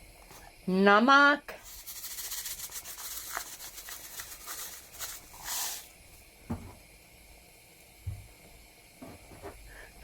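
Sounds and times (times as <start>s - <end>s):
salt shaken into pot hissing: 1.6s - 6.4s.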